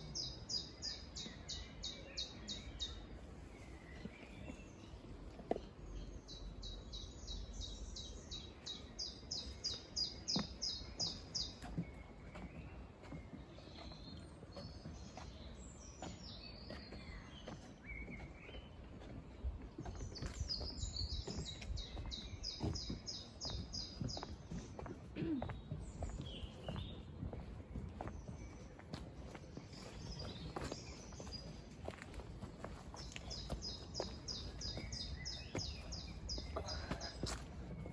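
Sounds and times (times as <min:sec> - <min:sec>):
songbird singing: 0:00.0 - 0:37.9.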